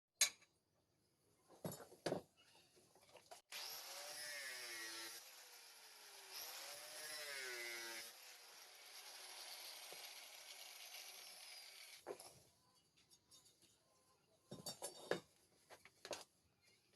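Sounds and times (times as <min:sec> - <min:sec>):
power tool hissing and whining: 0:03.5 - 0:12.0.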